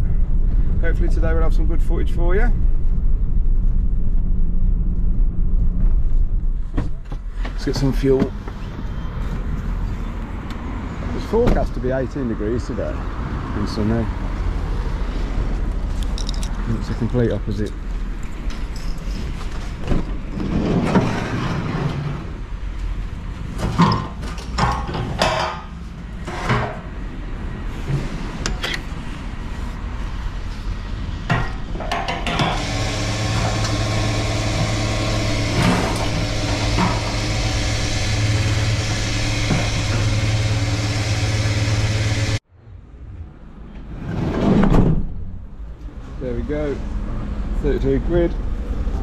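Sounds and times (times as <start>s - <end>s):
knocks and clatter: 23.5s - 26.9s, 31.3s - 32.6s
fuel pump humming: 31.3s - 42.4s
fuel rushing: 32.4s - 42.4s.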